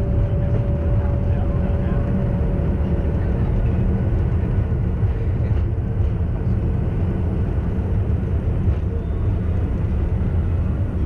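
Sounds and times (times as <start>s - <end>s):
jet engine rumble in cabin: 0.0s - 11.0s.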